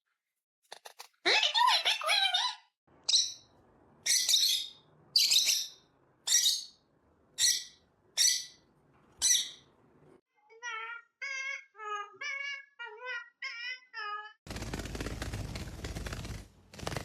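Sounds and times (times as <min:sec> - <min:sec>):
parrot squawking: 0:01.2 - 0:06.8, 0:07.4 - 0:09.7, 0:10.6 - 0:14.4.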